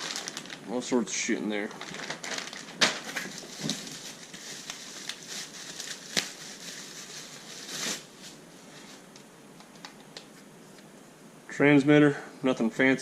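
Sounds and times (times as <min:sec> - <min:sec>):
box contents rustling: 0:00.0 - 0:00.6, 0:01.6 - 0:08.3
plastic bags crinkling: 0:00.0 - 0:08.4.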